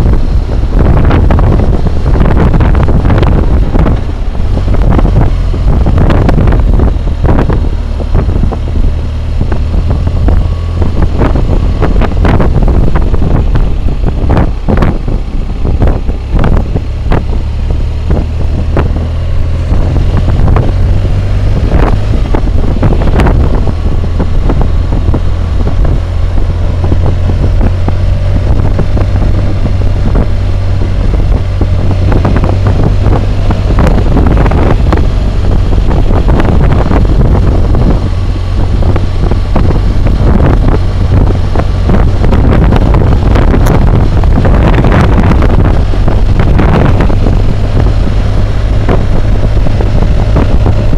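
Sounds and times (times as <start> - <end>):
motorcycle engine running: 0.0 - 50.9
wind buffeting microphone: 0.0 - 50.9.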